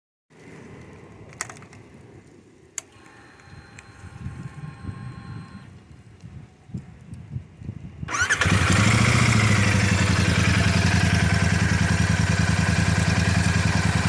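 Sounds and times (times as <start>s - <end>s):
faint electrical whine: 2.6s - 6.9s.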